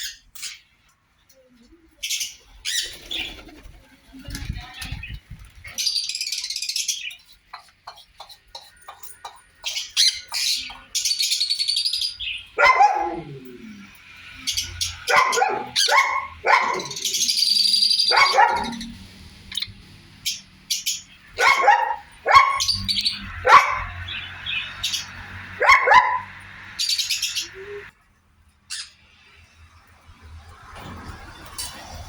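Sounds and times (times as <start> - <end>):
parrots squawking: 9.6 - 27.9.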